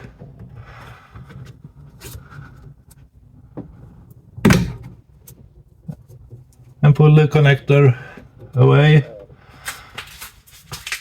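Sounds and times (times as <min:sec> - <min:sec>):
loud knock: 0:04.4 - 0:04.8.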